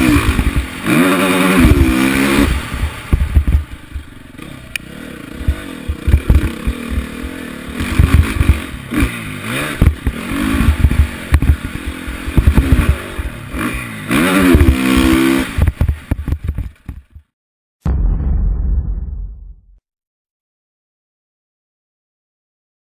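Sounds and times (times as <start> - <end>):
motocross bike engine revving: 0.0 - 16.3
low rumble: 17.8 - 19.8.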